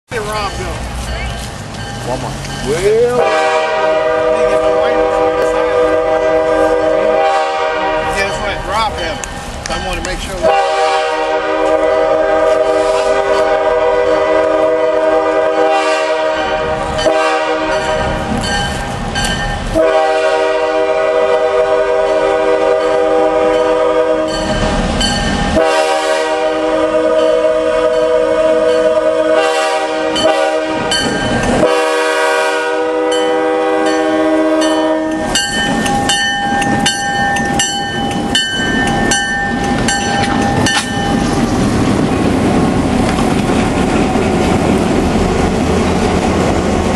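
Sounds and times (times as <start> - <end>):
locomotive bell ringing: 0.1 - 5.6, 8.1 - 10.6, 16.9 - 19.8, 22.0 - 25.7, 27.1 - 29.2, 30.1 - 31.7, 33.0 - 41.4
train air horn blasts: 3.1 - 8.6, 10.4 - 18.8, 19.7 - 24.7, 25.4 - 36.9.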